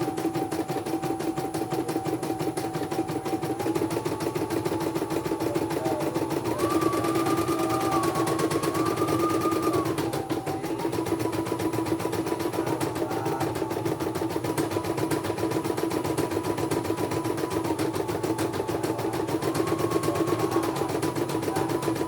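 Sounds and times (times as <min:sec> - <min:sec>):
embroidery machine needle chatter: 0:00.6 - 0:22.0
machine hum: 0:11.8 - 0:22.0.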